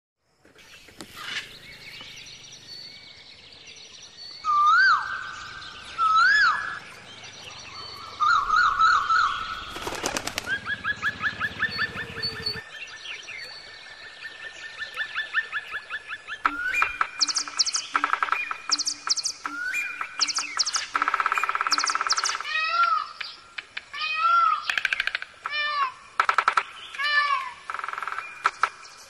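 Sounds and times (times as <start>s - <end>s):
bird whistles: 4.4s - 6.8s, 7.8s - 12.6s, 16.4s - 22.5s
bird warbling trill: 4.4s - 13.6s, 14.9s - 23.4s.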